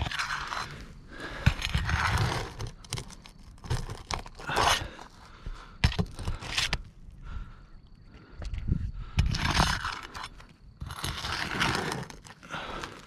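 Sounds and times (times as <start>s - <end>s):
roof shingles scraping and tearing: 0.0s - 5.3s, 9.3s - 13.0s.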